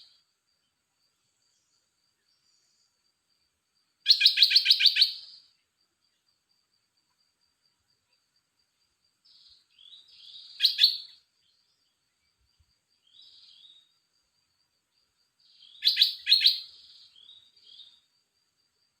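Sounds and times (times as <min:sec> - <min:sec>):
faint insect trill: 0:00.0 - 0:19.0
bird singing warbled phrases: 0:04.1 - 0:05.5, 0:09.3 - 0:11.7, 0:13.0 - 0:13.9, 0:15.4 - 0:18.0.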